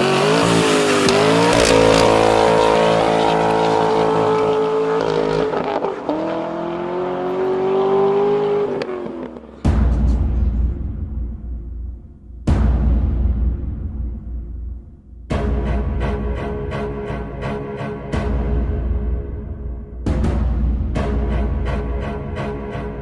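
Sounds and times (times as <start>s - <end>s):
car engine revving hard: 0.0s - 9.6s
deep boom with low rumble: 9.6s - 15.4s.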